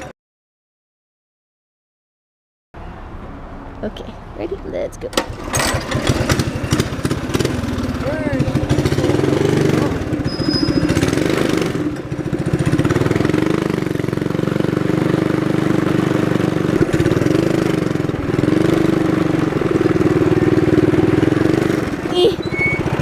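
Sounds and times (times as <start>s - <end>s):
minibike engine revving: 5.1s - 23.0s.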